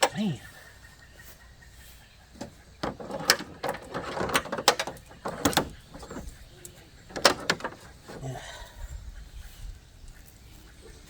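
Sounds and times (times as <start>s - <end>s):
equipment clicks and knocks: 2.4s - 8.2s.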